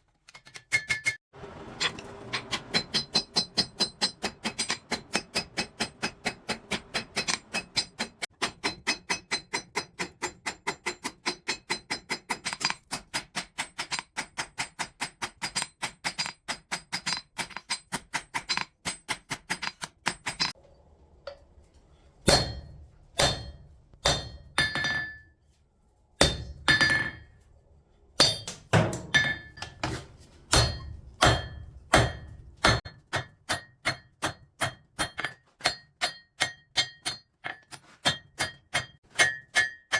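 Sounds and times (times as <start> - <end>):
hammer striking steel on anvil: 1.8 - 20.6, 22.2 - 25.3, 26.2 - 27.4, 28.2 - 39.9.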